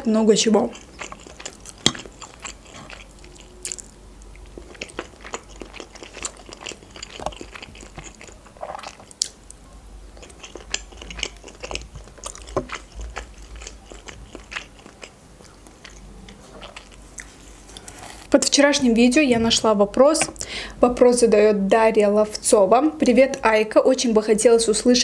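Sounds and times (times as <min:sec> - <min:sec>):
chewing and wet mouth sounds: 0:00.3 - 0:18.6.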